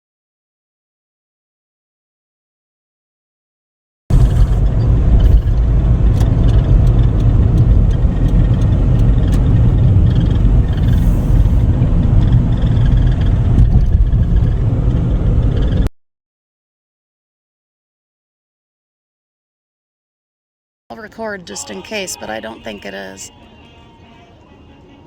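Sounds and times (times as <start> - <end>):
low rumble: 4.1 - 15.9.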